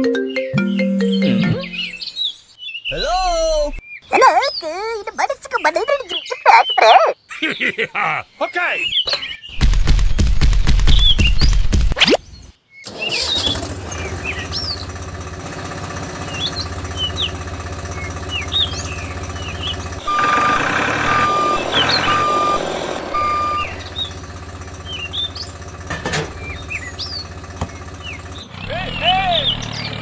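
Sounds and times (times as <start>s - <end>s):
birds chirping: 0.0s - 30.0s
vehicle engine running: 12.9s - 30.0s
reversing beeper: 19.4s - 24.2s.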